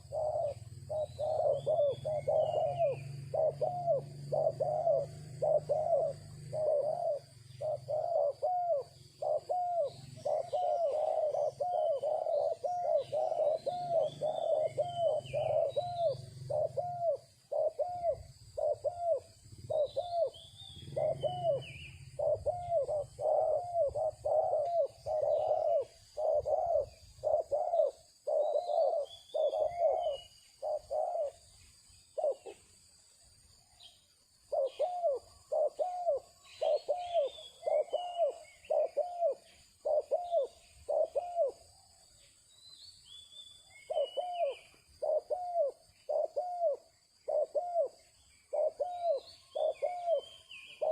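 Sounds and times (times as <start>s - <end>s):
bird calling low repeated notes: 0.0s - 32.7s
small bird chirping: 0.0s - 50.9s.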